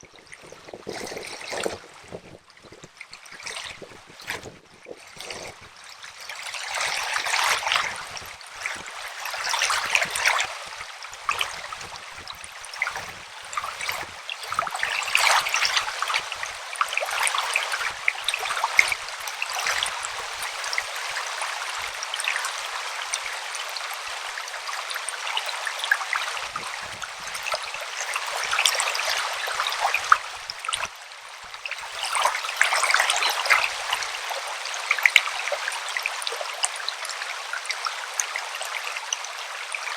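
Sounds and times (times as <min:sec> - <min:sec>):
river water running over rocks: 0:00.0 - 0:39.9.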